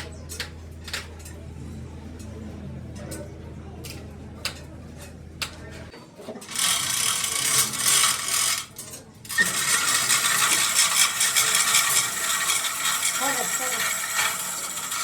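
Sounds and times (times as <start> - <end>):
low machine hum: 0.0 - 15.0
fast mechanical rattle: 6.4 - 15.0.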